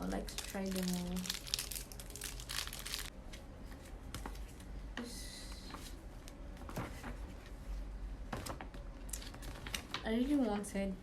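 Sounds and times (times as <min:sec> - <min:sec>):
plastic packets crinkling: 0:00.2 - 0:03.1.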